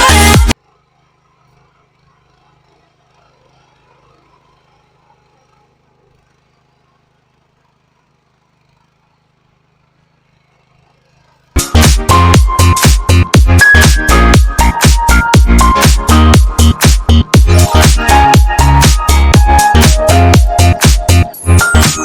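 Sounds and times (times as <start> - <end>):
dance music: 0.0 - 0.6, 11.6 - 22.0.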